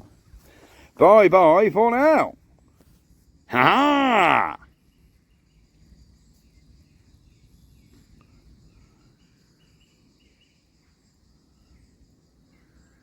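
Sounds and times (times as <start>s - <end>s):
small bird chirping: 4.7s - 12.1s.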